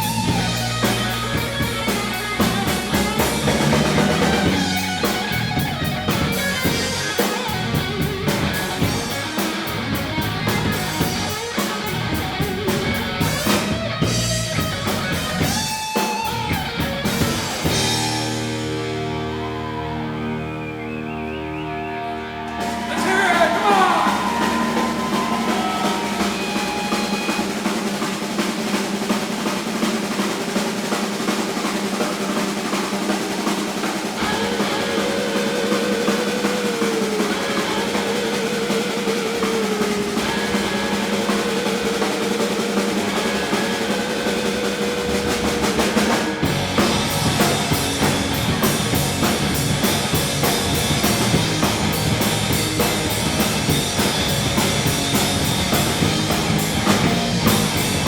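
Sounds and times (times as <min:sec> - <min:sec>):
wavering held lead notes: 0:00.0 - 0:15.7
drums and snare rolls: 0:00.0 - 0:19.8, 0:22.5 - 0:58.0
live rock band playing: 0:00.0 - 0:58.0.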